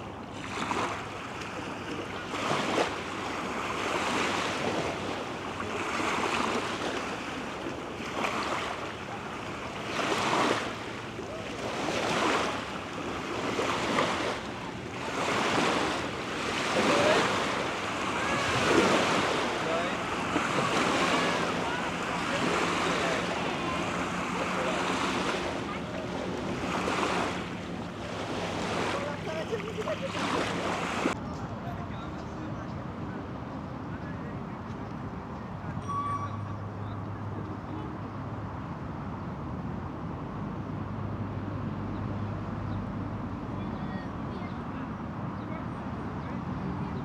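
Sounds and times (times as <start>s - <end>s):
small waves lapping at shore: 0.0s - 47.0s.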